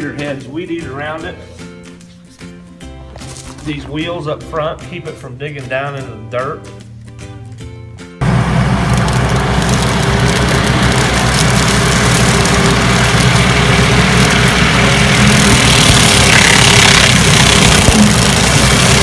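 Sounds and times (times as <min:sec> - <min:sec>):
skid steer engine running: 0:08.2 - 0:19.0.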